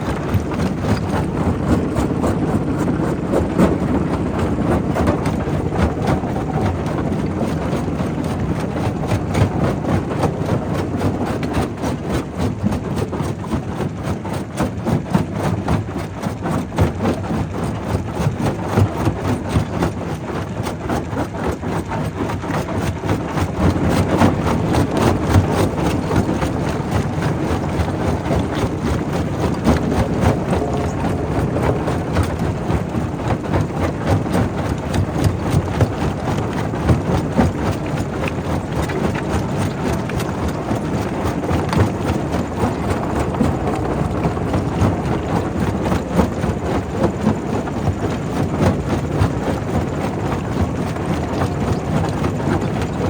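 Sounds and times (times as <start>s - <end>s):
heavy machine rumble: 0.0s - 11.4s, 23.4s - 53.0s.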